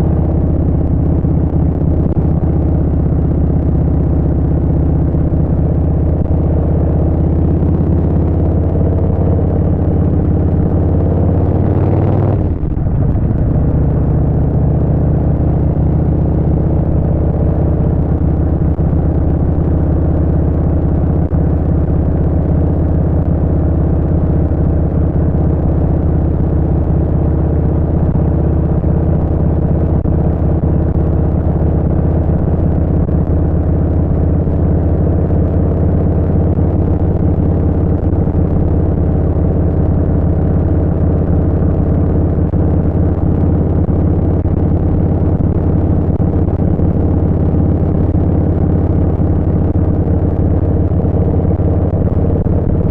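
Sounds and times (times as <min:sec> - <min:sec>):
motorcycle engine cruising: 0:00.0 - 0:52.9.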